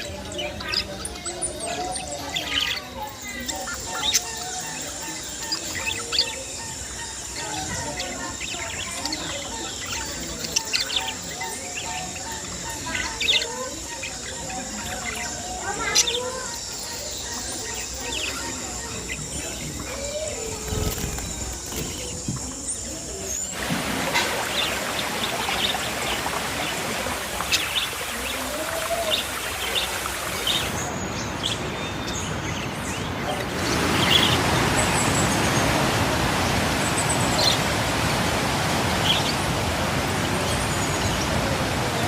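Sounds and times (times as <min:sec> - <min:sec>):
rushing background noise: 0:17.4 - 0:42.0.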